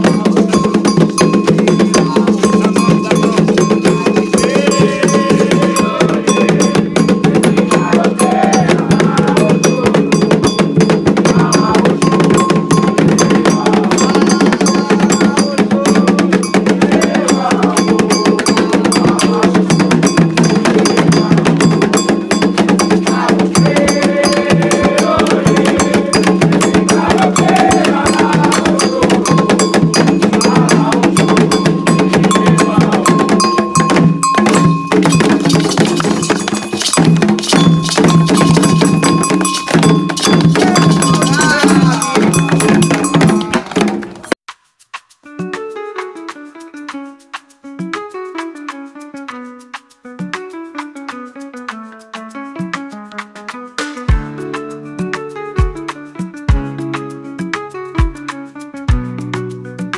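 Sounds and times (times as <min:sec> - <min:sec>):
struck bell rhythm: 0:00.0 - 0:44.4
hand drums: 0:00.0 - 0:45.1
faint voices: 0:38.0 - 0:44.4.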